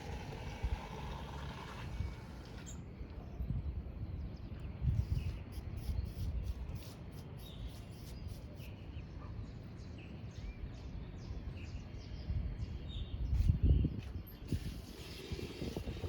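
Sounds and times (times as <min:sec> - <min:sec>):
wind buffeting microphone: 0:00.0 - 0:02.7, 0:03.4 - 0:06.7, 0:12.2 - 0:16.0
small birds chirping: 0:00.0 - 0:16.0.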